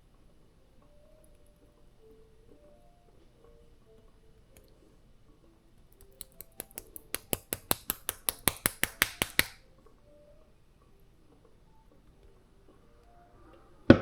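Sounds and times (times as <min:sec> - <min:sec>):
rapid sharp clicks: 0:05.9 - 0:09.6.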